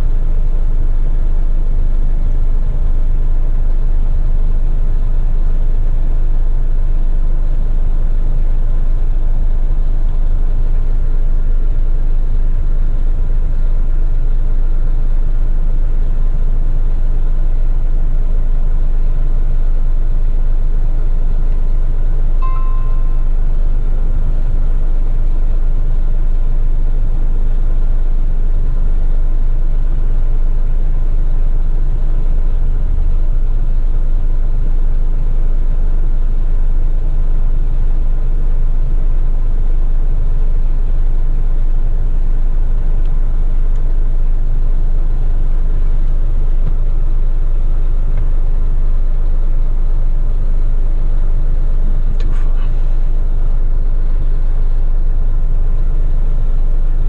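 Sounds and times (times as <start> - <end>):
brief click: 52.2 - 52.8.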